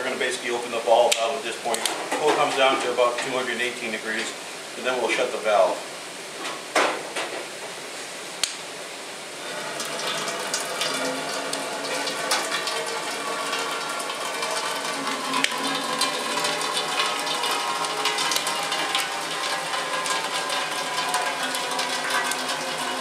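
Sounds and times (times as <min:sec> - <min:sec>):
syrup pouring into container: 0:09.4 - 0:23.0.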